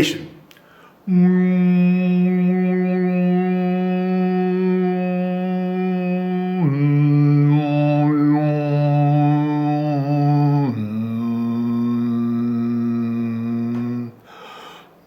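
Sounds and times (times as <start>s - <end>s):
man humming: 0.0s - 0.4s, 1.1s - 14.3s.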